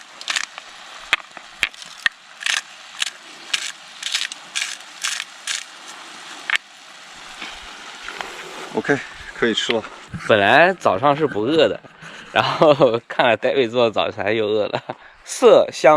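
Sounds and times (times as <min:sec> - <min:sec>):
pepper grinder grinding: 0:01.9 - 0:05.7.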